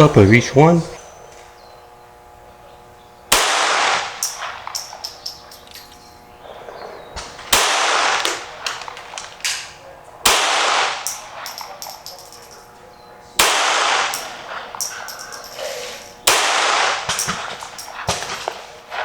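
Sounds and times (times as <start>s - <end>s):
loud gunshots with echo: 3.3s - 5.7s, 6.5s - 19.0s.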